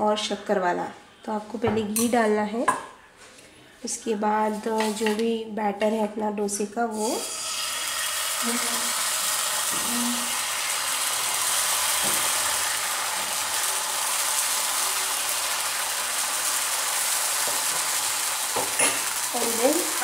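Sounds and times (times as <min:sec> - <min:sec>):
batter sizzling in a frying pan: 0:06.9 - 0:20.0.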